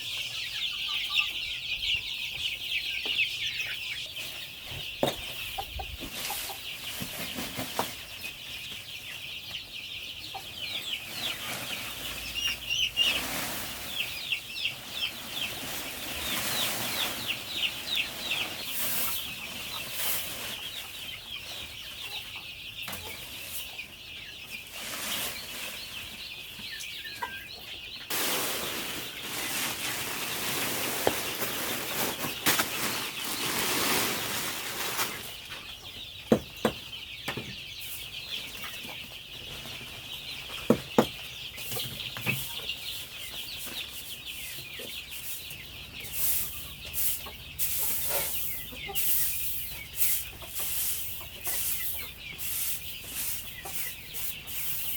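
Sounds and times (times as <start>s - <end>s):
chickens clucking: 0.0s - 54.9s
rustling: 11.0s - 20.8s, 28.1s - 35.5s, 50.0s - 54.9s.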